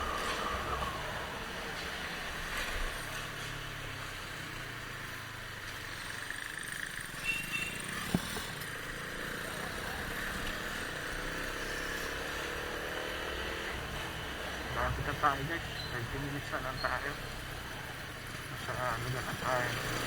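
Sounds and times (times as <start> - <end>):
motorcycle engine: 0.0 - 20.0
wind and road noise: 0.0 - 20.0.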